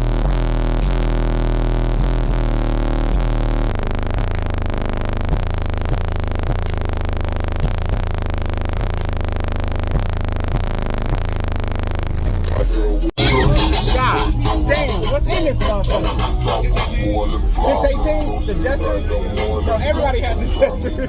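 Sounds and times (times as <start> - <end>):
distorted bass-heavy music: 0.0 - 21.0.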